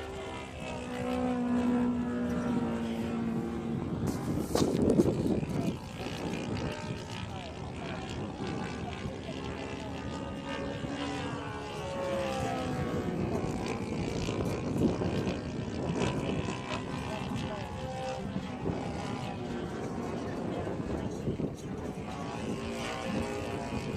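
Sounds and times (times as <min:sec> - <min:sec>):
model plane engine drone: 0:00.0 - 0:23.9.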